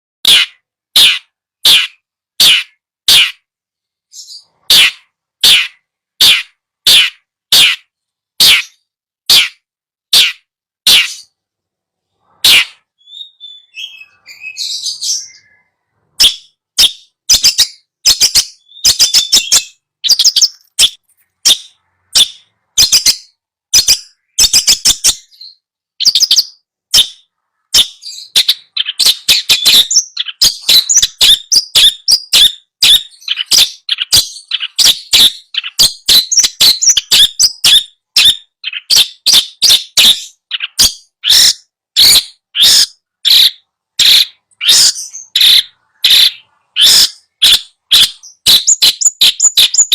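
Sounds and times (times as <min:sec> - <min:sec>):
shrike sharp repeated calls: 0:00.2 - 0:03.5, 0:04.1 - 0:11.4, 0:12.1 - 0:49.9.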